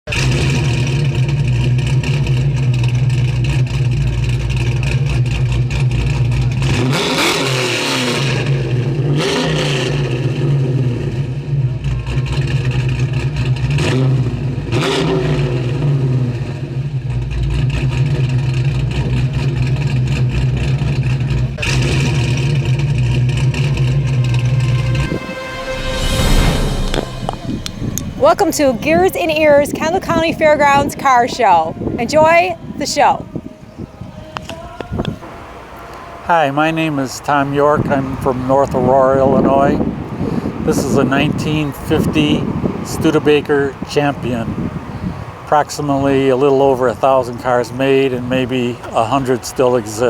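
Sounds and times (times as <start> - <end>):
car engine revving: 0.1 - 30.7.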